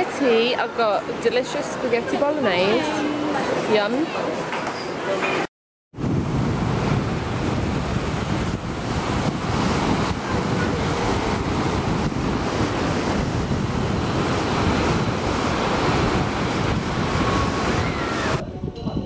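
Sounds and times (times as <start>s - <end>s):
waves breaking on beach: 6.0s - 18.4s
wind buffeting microphone: 6.0s - 19.0s.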